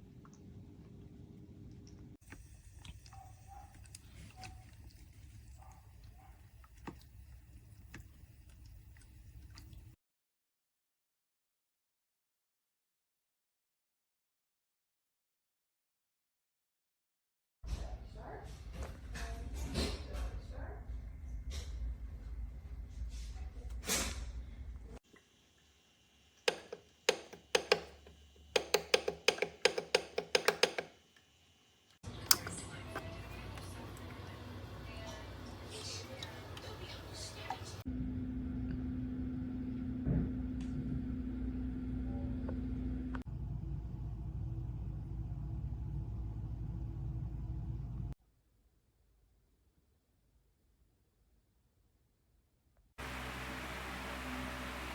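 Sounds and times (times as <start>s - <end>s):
humidifier humming: 32.0s - 48.1s, 53.0s - 54.9s
low rumble: 38.0s - 48.1s.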